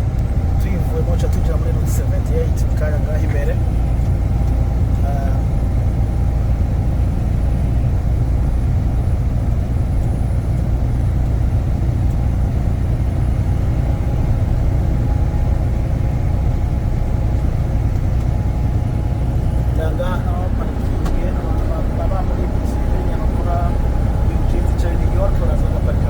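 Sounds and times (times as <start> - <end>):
truck engine and road rumble: 0.0 - 26.0.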